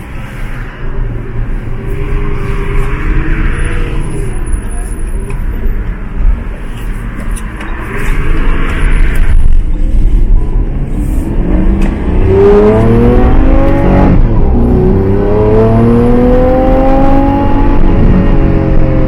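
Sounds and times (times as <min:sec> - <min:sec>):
car engine accelerating: 0:10.6 - 0:19.0.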